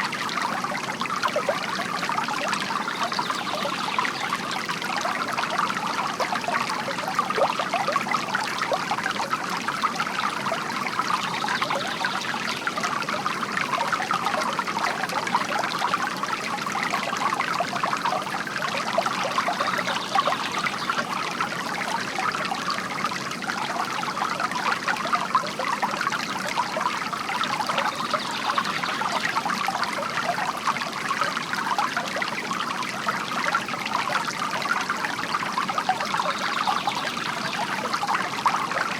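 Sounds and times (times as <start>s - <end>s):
water trickling and splashing: 0.0s - 38.9s.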